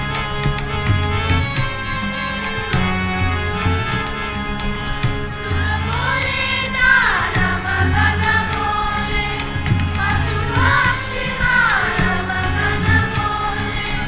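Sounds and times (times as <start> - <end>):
instrumental music with drone: 0.0 - 14.0
voices singing devotional chant: 0.0 - 14.0.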